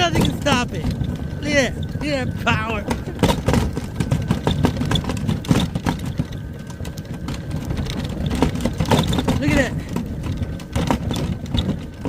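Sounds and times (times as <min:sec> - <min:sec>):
snow crunching and scraping: 0:00.0 - 0:04.6, 0:09.4 - 0:12.0
low rumble: 0:00.0 - 0:12.0.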